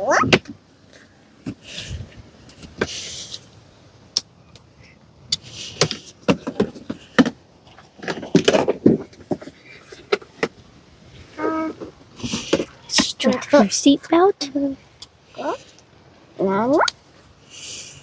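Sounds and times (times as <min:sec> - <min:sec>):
rustling: 0:04.8 - 0:16.4.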